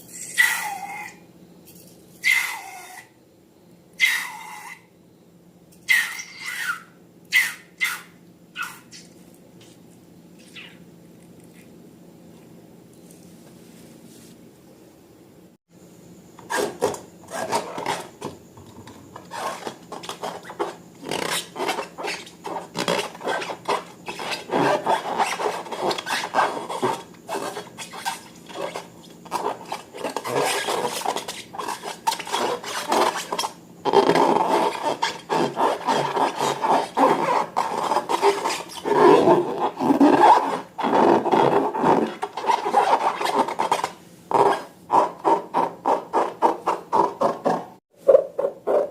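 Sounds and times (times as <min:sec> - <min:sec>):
rubbing and scraping strokes: 0:19.2 - 0:48.9.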